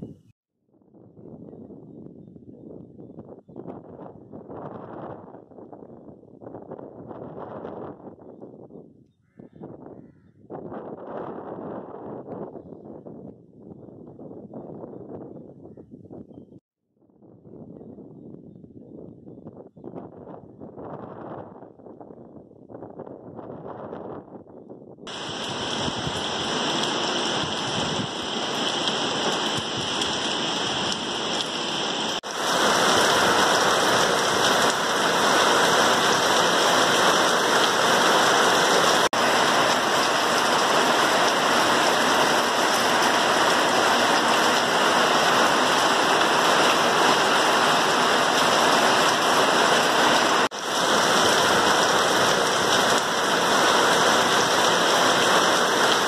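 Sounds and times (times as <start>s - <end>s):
heavy rain on trees: 25.1s - 56.0s.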